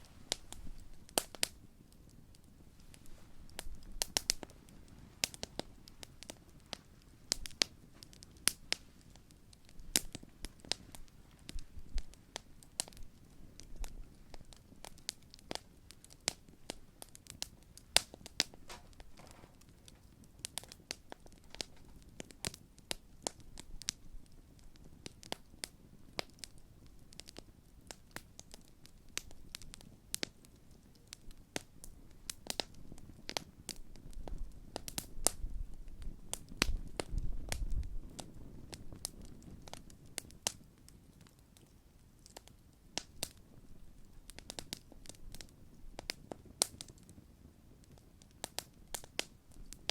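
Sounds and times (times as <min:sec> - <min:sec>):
campfire crackling and popping: 0:00.0 - 0:49.9.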